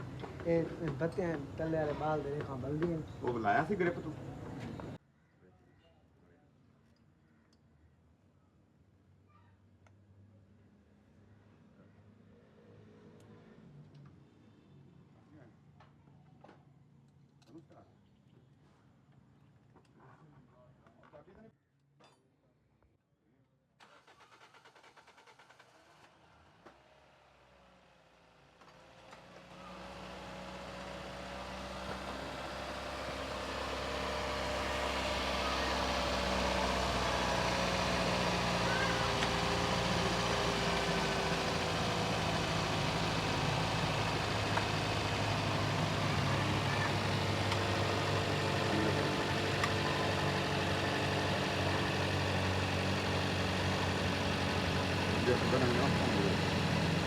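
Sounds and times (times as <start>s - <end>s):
car engine running: 0.0s - 5.0s, 28.9s - 57.0s.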